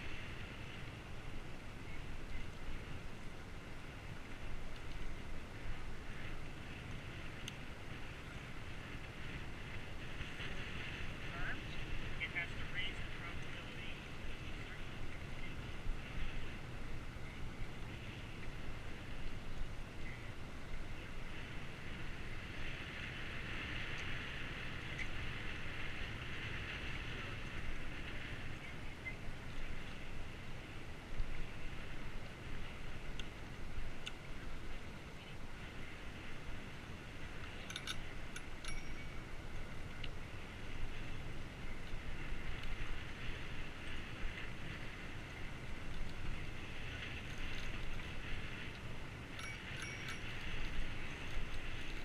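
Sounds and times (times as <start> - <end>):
bicycle tyres rolling: 0.0 - 52.0
wind noise: 0.0 - 52.0
faint ticks: 4.2 - 5.3, 6.9 - 9.8, 23.8 - 24.2, 32.2 - 34.3, 37.3 - 52.0.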